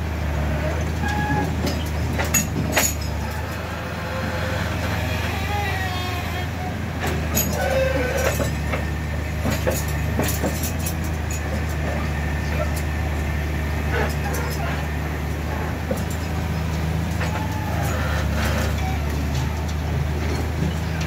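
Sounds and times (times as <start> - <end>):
diesel truck engine drone: 0.0 - 21.0.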